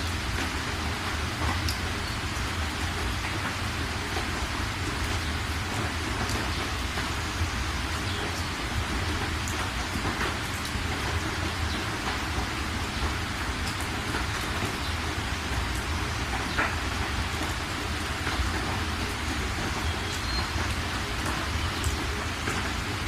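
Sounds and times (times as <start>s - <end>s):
steady rain hiss: 0.0s - 23.0s
faint raindrop ticks: 0.2s - 23.0s.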